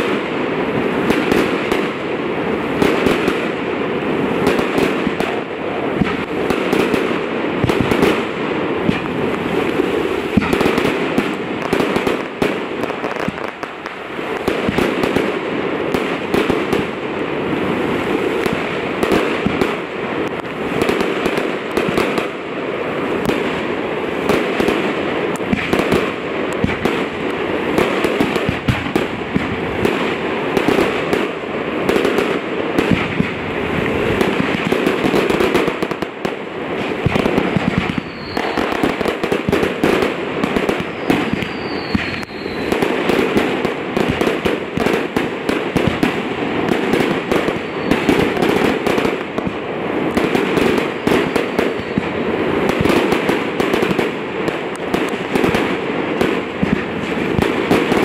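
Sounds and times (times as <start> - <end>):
faint high whistles: 38.0 - 38.7, 40.9 - 42.8.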